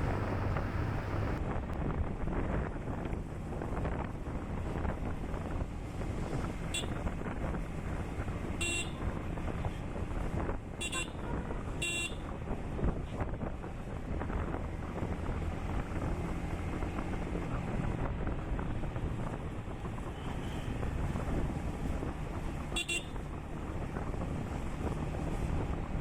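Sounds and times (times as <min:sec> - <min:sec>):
motorcycle engine running: 0:00.0 - 0:01.4
wind noise on microphone: 0:00.0 - 0:26.0
horn toots: 0:08.6 - 0:09.0, 0:10.8 - 0:12.2, 0:22.7 - 0:23.2.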